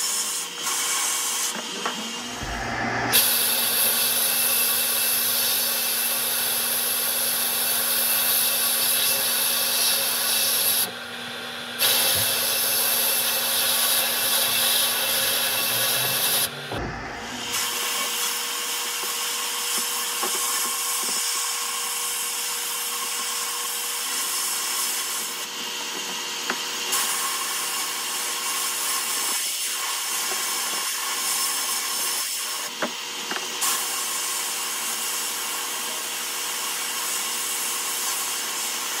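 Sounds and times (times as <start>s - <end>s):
sandblaster hissing: 2.3s - 10.9s, 11.8s - 22.0s.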